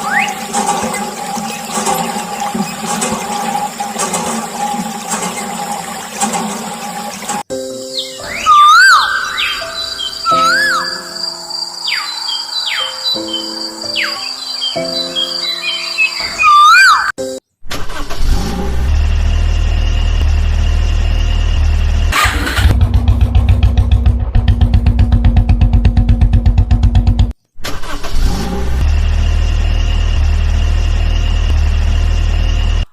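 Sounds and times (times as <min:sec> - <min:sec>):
tractor engine running: 0:00.0 - 0:07.5, 0:17.7 - 0:32.9.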